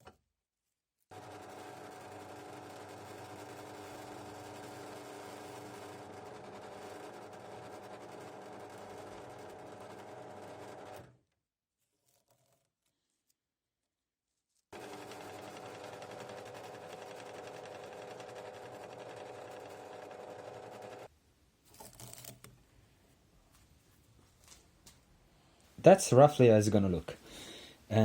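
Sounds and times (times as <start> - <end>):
power tool motor running: 1.1 - 11.1, 14.8 - 21.1.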